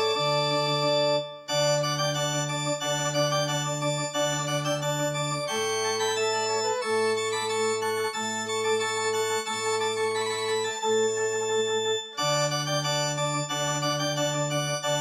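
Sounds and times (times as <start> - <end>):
organ playing slow chords: 0.0 - 4.0.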